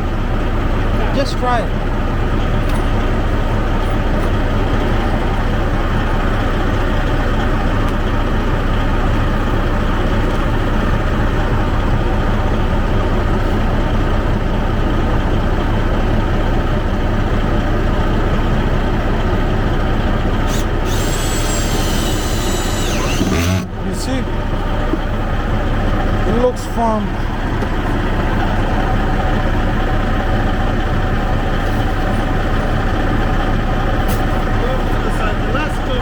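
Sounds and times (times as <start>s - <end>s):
truck diesel engine idling: 0.0s - 36.0s.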